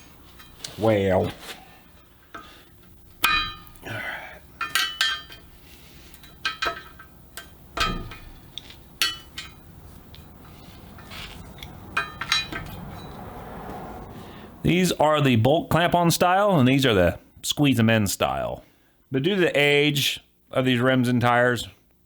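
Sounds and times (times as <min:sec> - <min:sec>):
metal tools clinking on wheel rim: 0:02.2 - 0:03.8, 0:04.6 - 0:13.9.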